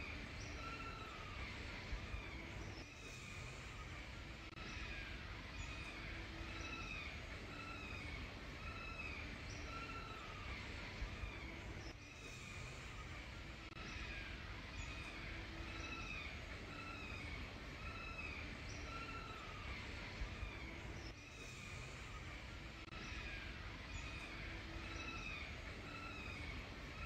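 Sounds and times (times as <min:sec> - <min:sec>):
bird calling: 0:00.0 - 0:27.0
low background rumble: 0:00.0 - 0:27.0.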